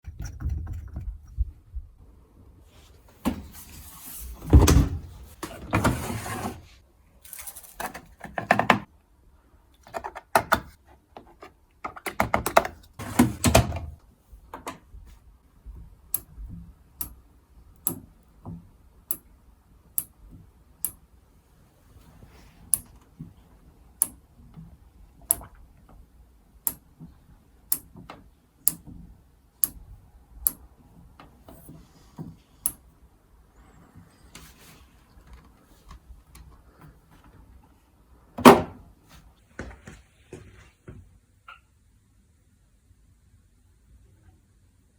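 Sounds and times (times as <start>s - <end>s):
washing machine knocks and rattles: 4.5s - 5.2s
washing machine sharp clicks: 17.8s - 18.1s, 26.6s - 26.9s, 27.7s - 28.0s, 28.6s - 28.9s, 29.6s - 30.6s.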